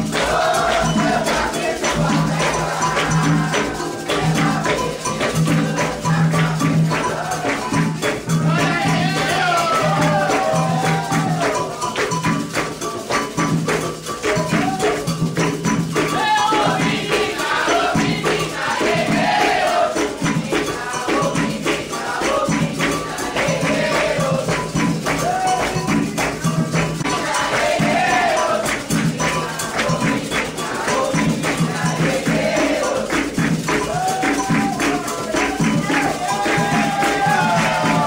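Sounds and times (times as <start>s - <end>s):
drums and rattling percussion: 0.0s - 38.0s
voices singing: 0.0s - 38.0s.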